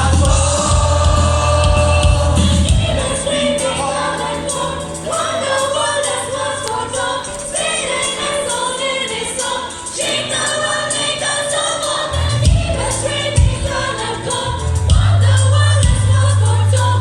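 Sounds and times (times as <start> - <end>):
heavy bass line and beat: 0.0 - 3.5
backing music: 0.0 - 17.0
choir singing worship song: 0.0 - 17.0.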